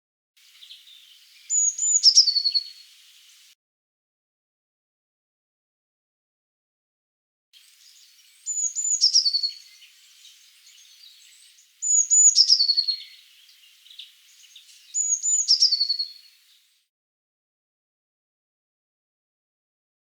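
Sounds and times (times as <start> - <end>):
songbird singing: 0.4 - 3.6, 7.6 - 16.8.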